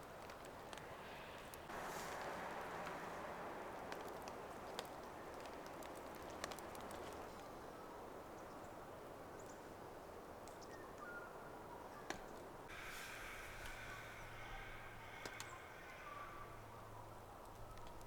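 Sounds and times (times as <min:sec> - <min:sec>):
raindrops ticking: 0:00.1 - 0:07.5
light rain hissing: 0:00.1 - 0:08.0, 0:12.7 - 0:18.0.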